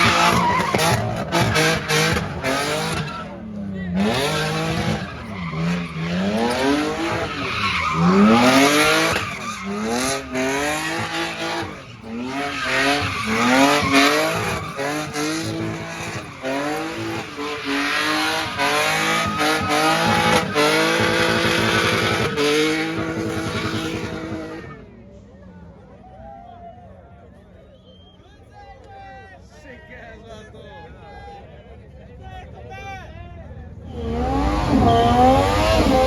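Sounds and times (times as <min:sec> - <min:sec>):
car engine revving hard: 0:00.0 - 0:24.8, 0:33.9 - 0:36.0
tires squealing on pavement: 0:00.0 - 0:24.8, 0:33.8 - 0:36.0.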